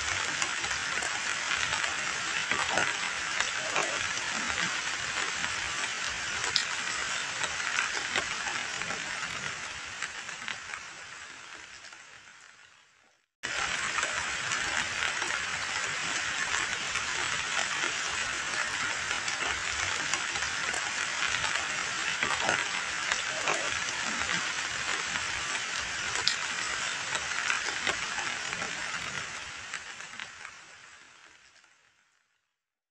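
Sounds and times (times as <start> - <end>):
heavy rain on standing water: 0.0 - 32.2.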